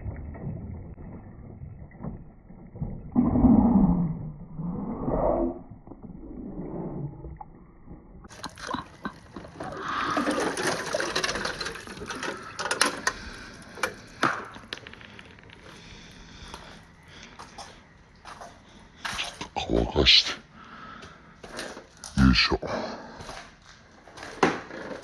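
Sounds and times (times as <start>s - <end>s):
marbles rolling and clattering: 0.0s - 4.1s, 8.2s - 16.6s
water running: 8.3s - 14.2s.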